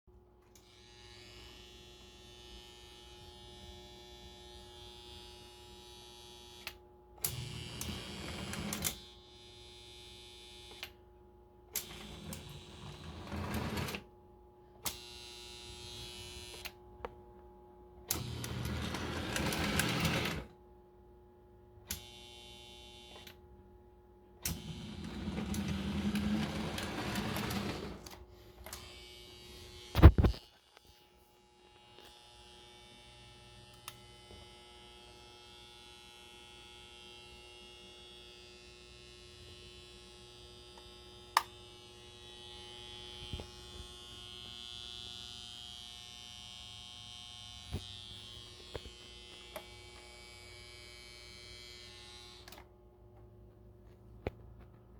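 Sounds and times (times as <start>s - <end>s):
mains hum: 0.1s - 54.9s
electric motor buzzing hum: 0.6s - 10.9s, 14.9s - 16.8s, 18.1s - 20.5s, 24.5s - 30.4s, 37.6s - 52.6s.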